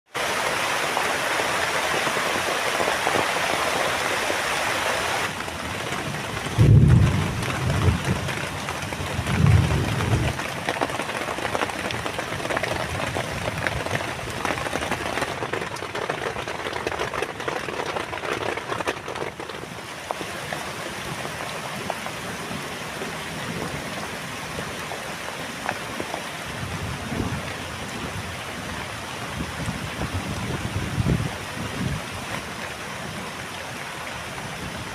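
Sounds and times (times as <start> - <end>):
heavy rain: 0.1 - 34.9
thunder rolling: 5.6 - 10.5.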